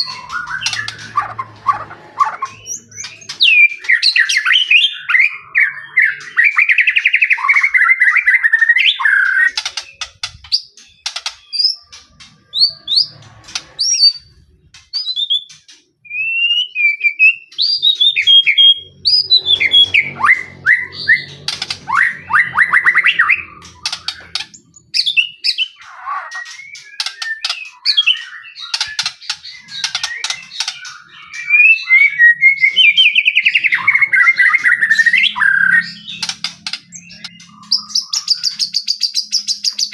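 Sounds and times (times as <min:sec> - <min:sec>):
bird singing whistled phrases: 0:00.0 - 0:09.9, 0:14.9 - 0:36.3.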